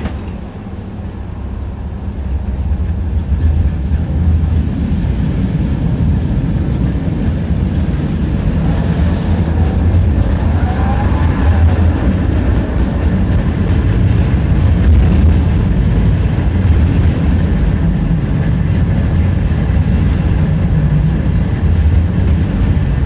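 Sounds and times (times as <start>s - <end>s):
tram wheels rumbling on rails: 0.0s - 23.0s
faint rising and falling tone: 7.6s - 14.0s.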